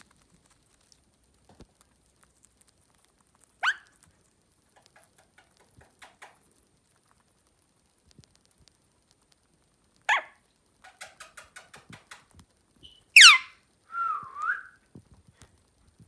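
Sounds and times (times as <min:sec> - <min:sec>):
beak cracking nut shell: 0:00.1 - 0:09.4, 0:10.7 - 0:12.6
parakeet squawk: 0:03.6 - 0:03.9, 0:10.1 - 0:10.4, 0:12.8 - 0:13.5.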